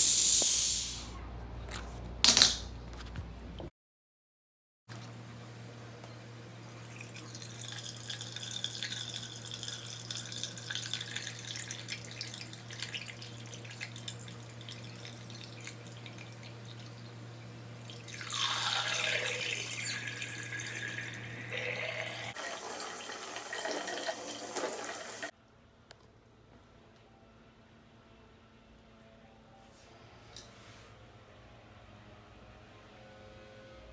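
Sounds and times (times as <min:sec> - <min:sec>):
water running from a tap: 0:06.8 - 0:17.0, 0:17.8 - 0:25.3.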